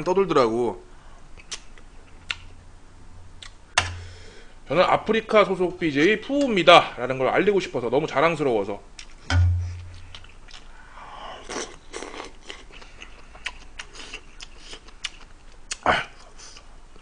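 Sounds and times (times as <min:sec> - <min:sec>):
man chewing food: 0:03.4 - 0:04.1, 0:09.0 - 0:10.7, 0:11.4 - 0:17.0
low thump: 0:09.3 - 0:10.0.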